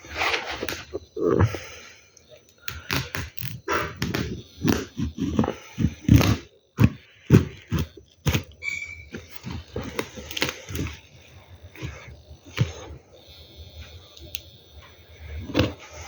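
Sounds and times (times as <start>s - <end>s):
packaging rustling and scraping: 0.0s - 1.1s, 2.8s - 13.0s
brief high squeak: 8.6s - 9.1s.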